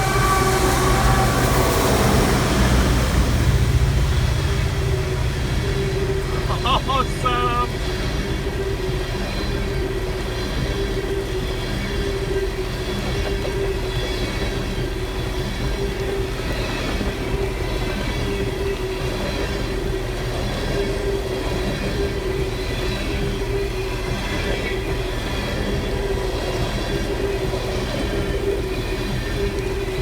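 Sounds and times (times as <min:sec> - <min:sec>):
steady tone: 0:00.0 - 0:08.1
train wheels rumbling on rails: 0:00.0 - 0:30.0.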